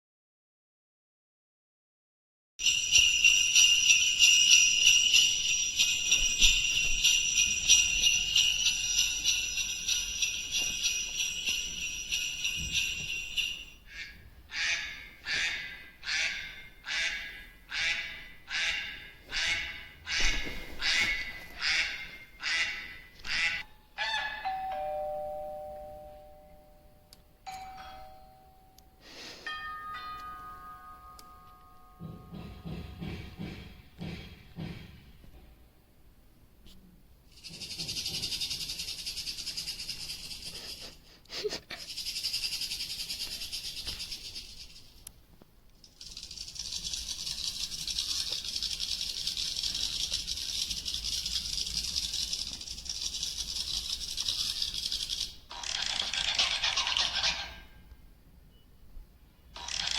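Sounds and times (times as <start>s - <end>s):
jingle bells shaking: 2.6s - 14.0s, 37.3s - 41.0s, 41.7s - 45.0s, 45.9s - 55.4s.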